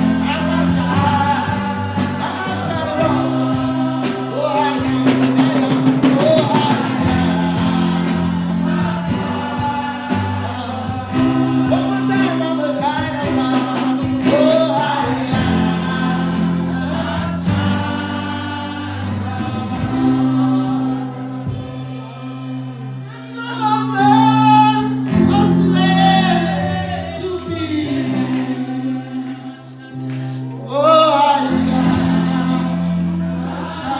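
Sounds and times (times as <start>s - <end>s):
bass line: 0.0s - 20.3s
percussion: 0.0s - 22.8s, 23.5s - 33.9s
gospel singers: 0.0s - 33.9s
keyboard chords: 0.0s - 33.9s.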